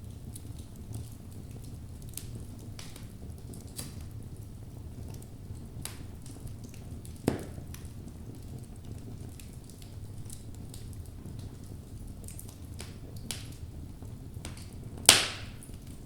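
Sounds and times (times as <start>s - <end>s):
fire flames rumbling: 0.0s - 16.0s
wood fire crackling: 0.0s - 16.0s
loud wood pop: 15.1s - 15.6s.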